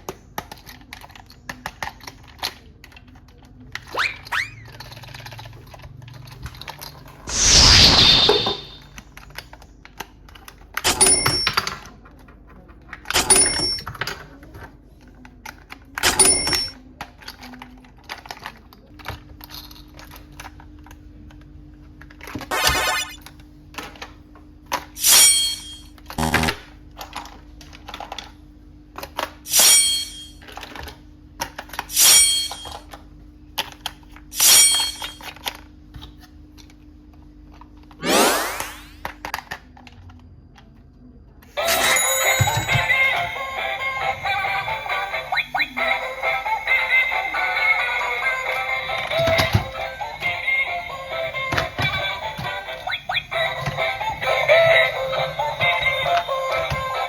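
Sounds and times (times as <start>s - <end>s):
plastic toys clicking and rattling: 0.0s - 7.4s, 8.8s - 22.5s, 27.0s - 29.6s, 30.3s - 38.0s, 39.0s - 57.0s
sound effect with ringing tones: 7.3s - 8.9s, 25.0s - 26.5s, 29.5s - 30.4s, 31.9s - 32.8s, 34.4s - 35.2s, 41.6s - 43.2s.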